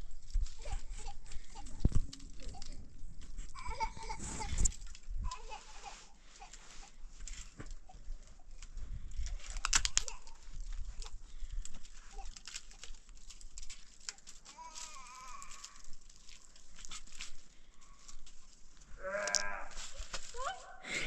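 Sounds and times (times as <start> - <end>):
animal bleating: 19.0 - 19.8.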